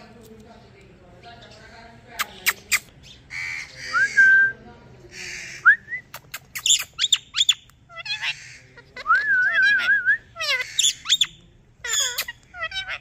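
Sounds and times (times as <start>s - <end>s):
parrot chirping: 5.2s - 13.0s
parrot squawking: 6.3s - 13.0s.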